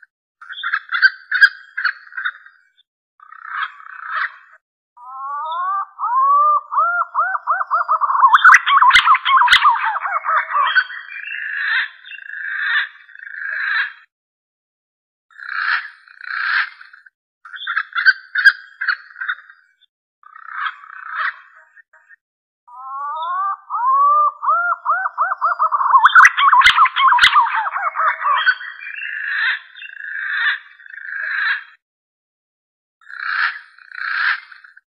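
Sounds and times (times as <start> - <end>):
whistled pigeon song: 5.2 - 11.5, 22.7 - 29.4.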